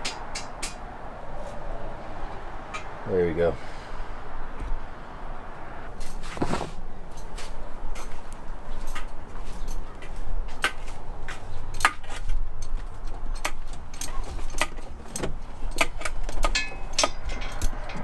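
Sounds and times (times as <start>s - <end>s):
steady low rumble: 0.0s - 6.2s.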